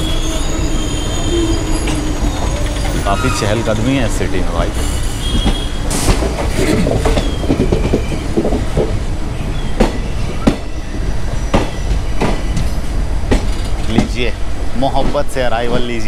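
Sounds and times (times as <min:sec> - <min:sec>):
high wheel squeal: 0:00.0 - 0:08.4, 0:09.4 - 0:12.9
train rumble from inside coach: 0:00.0 - 0:16.0
wheels clacking over rail joints: 0:00.0 - 0:16.0.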